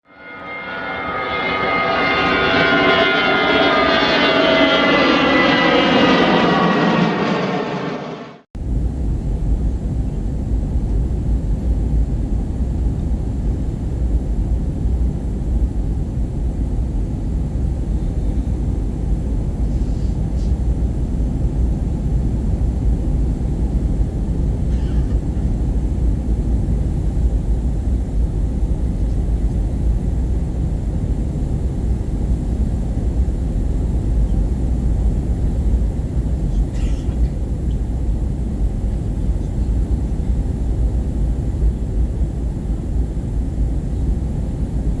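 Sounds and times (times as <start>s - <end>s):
faint brief high sounds: 0.1s - 8.4s
airplane cabin engine roar: 0.1s - 45.0s.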